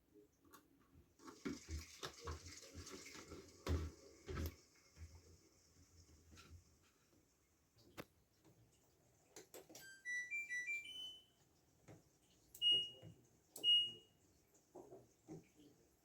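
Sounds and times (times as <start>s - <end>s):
loud beeps: 10.1s - 11.2s.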